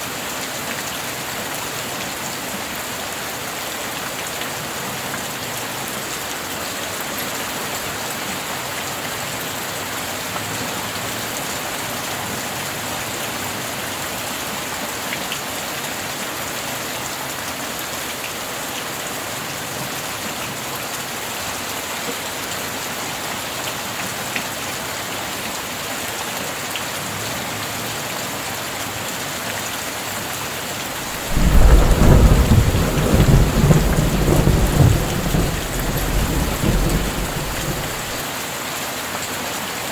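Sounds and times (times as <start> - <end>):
heavy rain falling: 28.9 - 38.3
thunder rumbling: 31.0 - 38.2.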